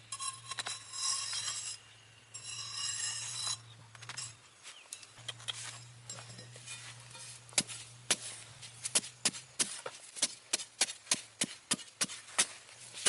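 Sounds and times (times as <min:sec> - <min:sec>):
sharp chopping strikes: 0:07.5 - 0:12.6.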